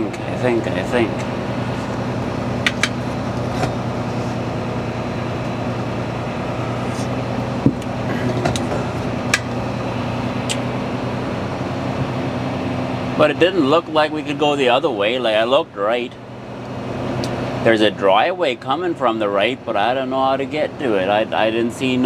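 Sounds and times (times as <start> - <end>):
diesel truck engine running: 0.0 - 22.0
sharp clicks: 10.4 - 10.7.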